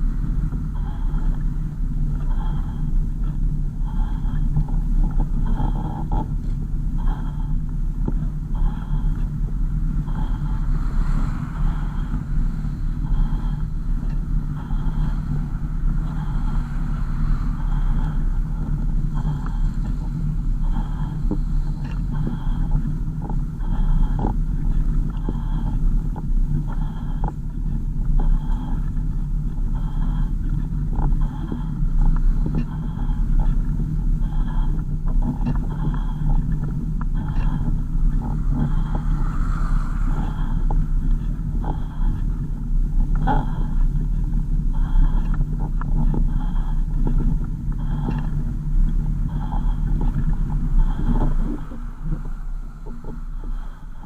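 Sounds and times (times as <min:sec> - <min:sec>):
car engine and road rumble: 0:00.0 - 0:54.0
car engine and road noise: 0:09.1 - 0:29.7, 0:36.4 - 0:41.7.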